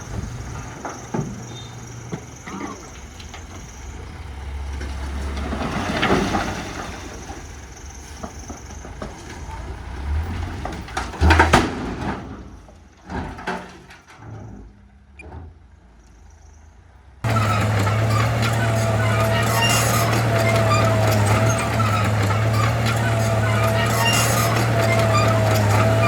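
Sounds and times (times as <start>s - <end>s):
diesel engine running: 0.0s - 12.1s, 17.2s - 26.0s
metallic clanks and rattles: 17.2s - 26.0s
sharp clatter: 17.2s - 26.0s.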